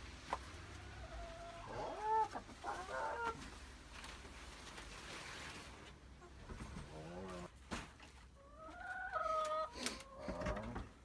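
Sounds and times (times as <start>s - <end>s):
hen clucking: 0.6s - 3.6s, 6.2s - 7.5s, 8.4s - 10.9s.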